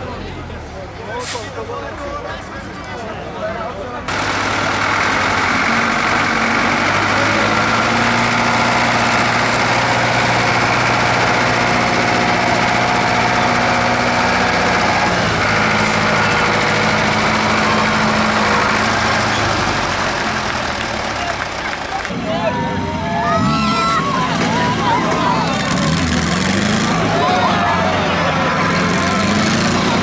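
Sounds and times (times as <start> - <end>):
tractor engine running: 4.1 - 22.2, 24.4 - 30.0.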